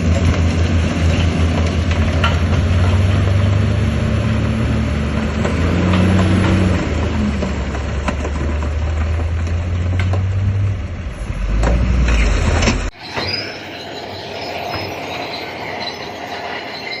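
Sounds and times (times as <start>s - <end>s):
heavy diesel engine running: 0.0s - 12.9s.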